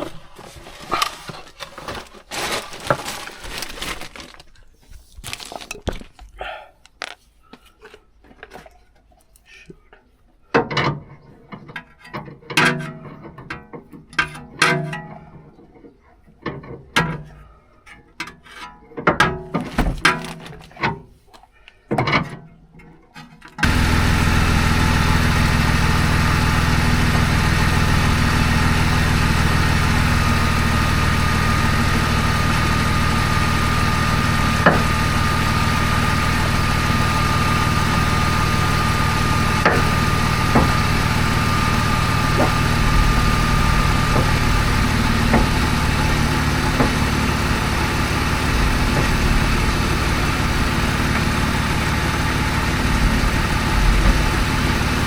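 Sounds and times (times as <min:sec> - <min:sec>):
car engine idling: 0:23.6 - 0:55.0.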